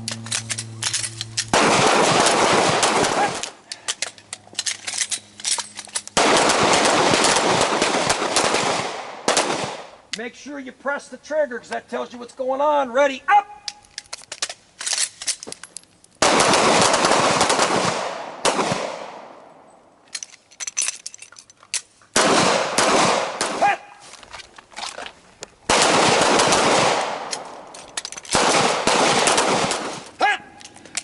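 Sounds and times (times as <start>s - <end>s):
handguns firing volleys: 0.0s - 10.2s, 16.2s - 19.5s, 22.2s - 23.7s, 25.7s - 31.0s
single gunshots: 1.5s - 3.5s, 6.2s - 9.9s, 16.2s - 19.4s, 22.2s - 23.8s, 25.7s - 27.7s, 28.3s - 30.1s.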